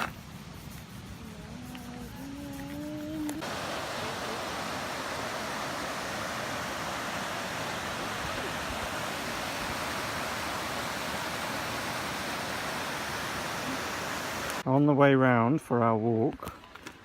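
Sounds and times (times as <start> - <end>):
rushing water: 2.6 - 14.7.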